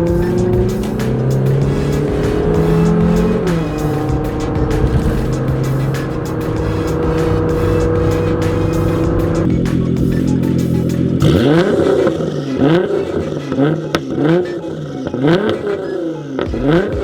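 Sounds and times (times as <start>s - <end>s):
exhaust pops and bangs: 0.0s - 10.3s
car engine revving: 0.0s - 17.0s.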